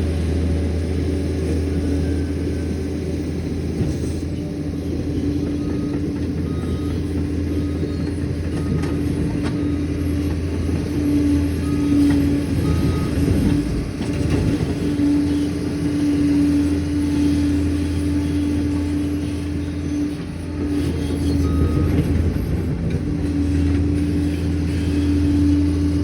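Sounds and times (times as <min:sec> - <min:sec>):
bulldozer diesel engine droning: 0:00.0 - 0:26.0.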